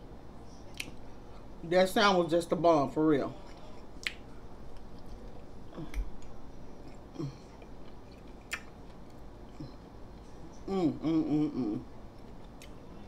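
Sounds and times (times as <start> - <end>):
person chewing: 3.4 - 12.8.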